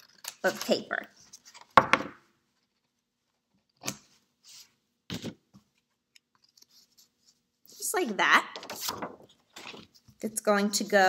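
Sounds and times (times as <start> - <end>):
faint paper handling: 5.6 - 10.2.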